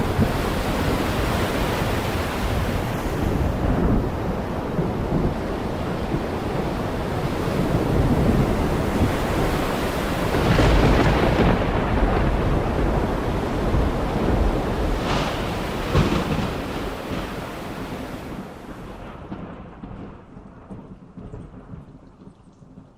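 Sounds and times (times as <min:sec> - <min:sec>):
heavy rain falling: 0:00.0 - 0:22.9
low thunder rumble: 0:00.0 - 0:22.9
sharp thunder cracks: 0:10.2 - 0:21.9.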